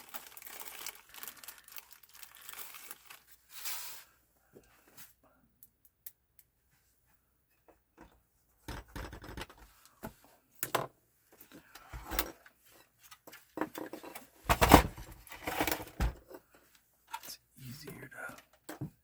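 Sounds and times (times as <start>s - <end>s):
knocks and clicks of plastic parts: 8.0s - 10.9s, 14.5s - 16.2s.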